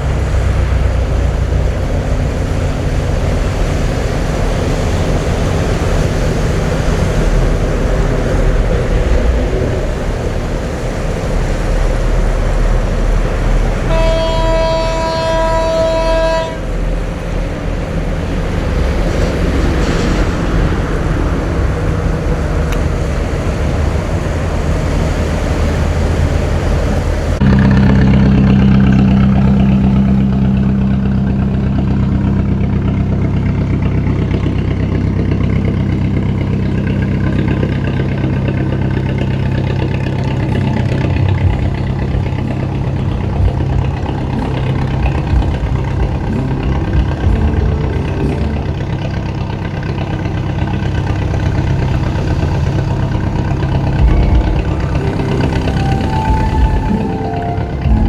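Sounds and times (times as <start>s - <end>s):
boat engine running: 0.0s - 58.0s
horn sounding: 12.6s - 19.2s, 36.2s - 58.0s.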